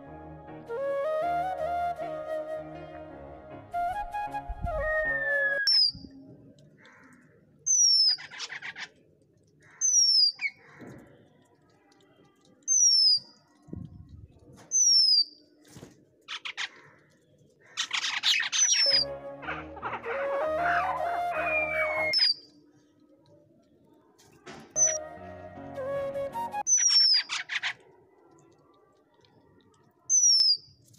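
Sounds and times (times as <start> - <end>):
birds harsh chattering: 16.3 - 22.4.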